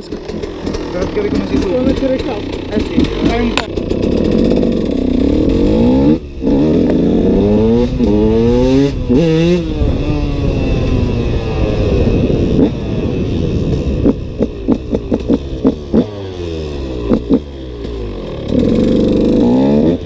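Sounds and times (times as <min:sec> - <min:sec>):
two-stroke engine revving: 0:00.0 - 0:20.0.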